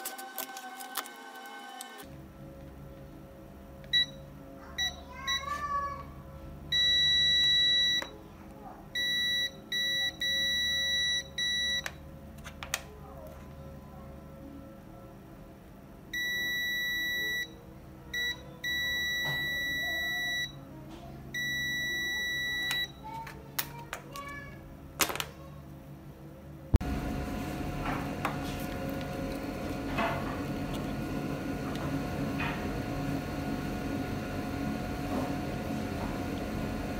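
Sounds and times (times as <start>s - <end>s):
multimeter continuity beeping: 6.7s - 8.1s, 9.0s - 11.9s, 16.2s - 17.6s, 18.2s - 20.6s, 21.4s - 23.0s
loud steady noise with hum: 25.9s - 36.9s.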